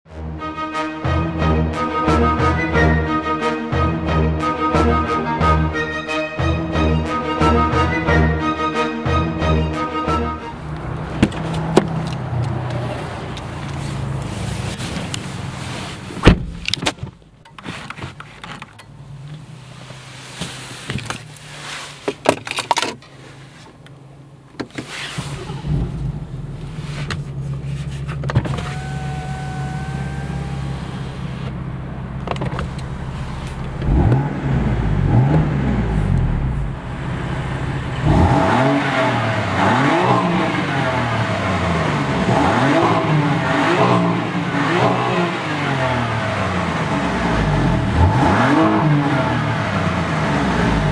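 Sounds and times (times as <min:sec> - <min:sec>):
car engine idling and revving: 0:09.0 - 0:50.9
sharp clicks and knocks: 0:32.2 - 0:34.2.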